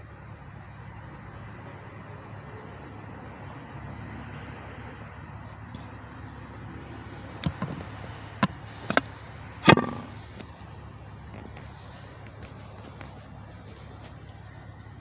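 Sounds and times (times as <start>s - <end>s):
truck engines idling: 0.0s - 15.0s
sharp bangs: 9.6s - 10.4s.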